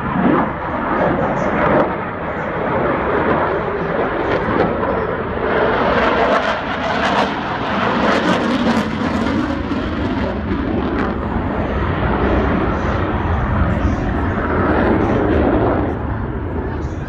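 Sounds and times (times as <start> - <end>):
jet aircraft engines roaring: 0.0 - 17.0.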